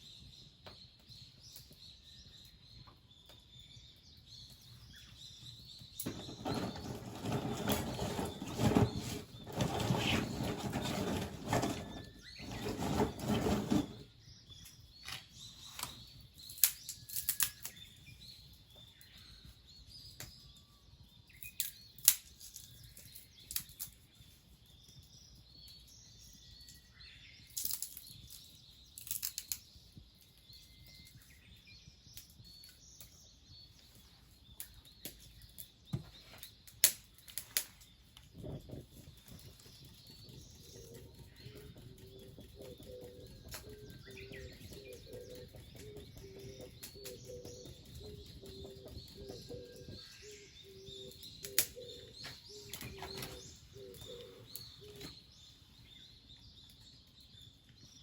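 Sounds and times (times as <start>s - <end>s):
small birds chirping: 0.0s - 58.0s
dove cooing: 40.8s - 49.9s, 50.7s - 55.1s.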